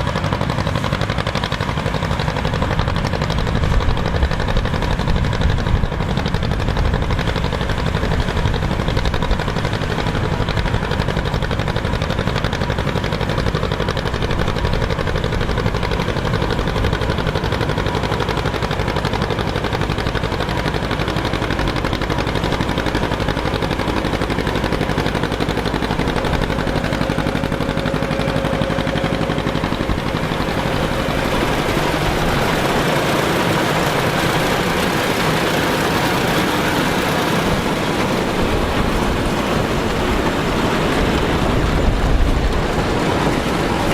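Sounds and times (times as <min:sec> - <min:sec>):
farm machinery engine rumble: 0:00.0 - 0:43.9
mechanical clatter: 0:00.0 - 0:43.9.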